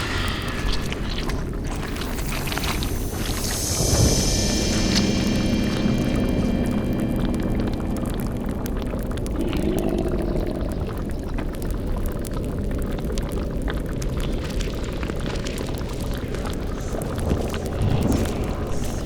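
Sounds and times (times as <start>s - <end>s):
low eerie swell: 0.0s - 12.2s, 16.4s - 19.0s
crackling and bubbling: 0.0s - 19.0s
deep rumble: 0.0s - 19.0s.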